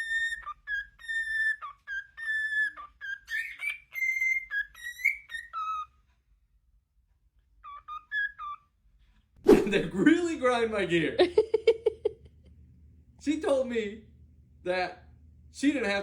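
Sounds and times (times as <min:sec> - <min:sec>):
pet bird whistling a tune: 0:00.0 - 0:06.0, 0:07.6 - 0:08.8.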